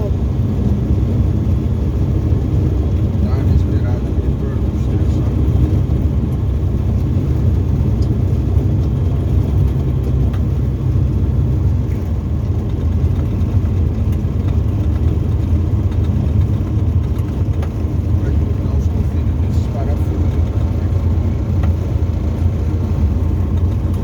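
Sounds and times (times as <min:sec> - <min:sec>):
light aircraft engine drone: 0:00.0 - 0:24.0.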